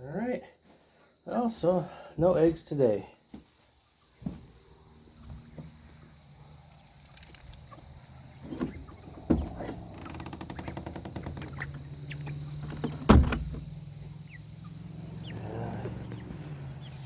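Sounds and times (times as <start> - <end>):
rattling buzz: 8.3 - 14.1.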